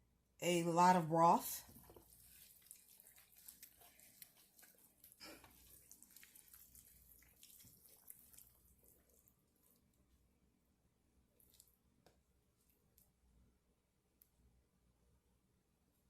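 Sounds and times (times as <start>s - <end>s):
hands rubbing seasoning into meat: 1.6s - 9.7s.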